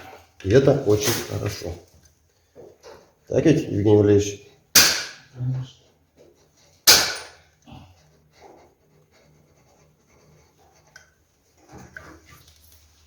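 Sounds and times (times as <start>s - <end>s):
sharp crack: 4.8s - 5.3s, 6.9s - 7.4s
faint handling and rustling: 7.4s - 13.0s.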